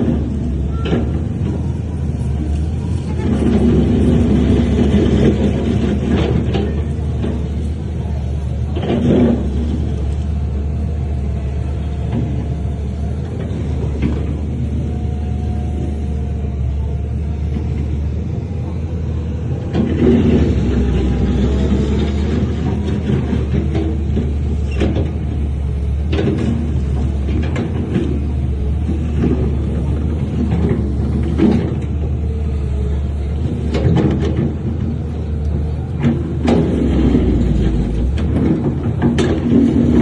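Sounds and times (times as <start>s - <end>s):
diesel engine rumbling: 0.0s - 40.0s.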